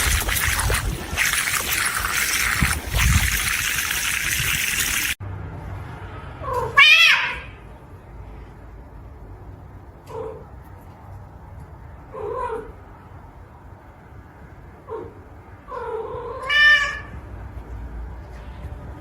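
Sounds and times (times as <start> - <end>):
cat meowing: 6.4 - 7.6, 15.7 - 17.2.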